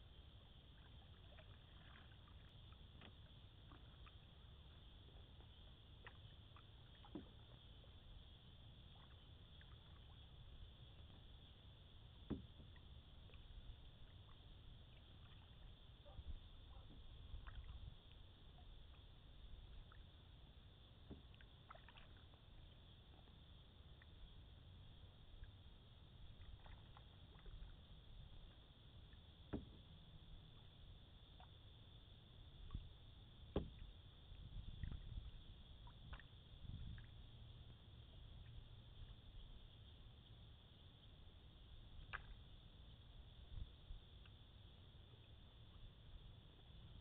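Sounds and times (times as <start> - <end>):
low steady rumble: 0.0 - 21.5
paddle knocks and drips: 0.7 - 11.4, 12.2 - 20.2, 20.8 - 24.2, 26.2 - 30.3, 32.6 - 39.1, 42.0 - 42.6.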